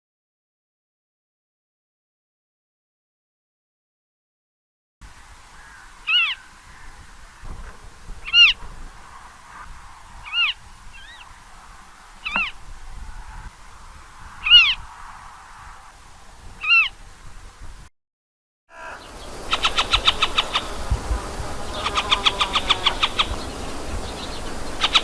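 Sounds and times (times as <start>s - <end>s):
bird of prey whistled call: 18.8s - 25.0s.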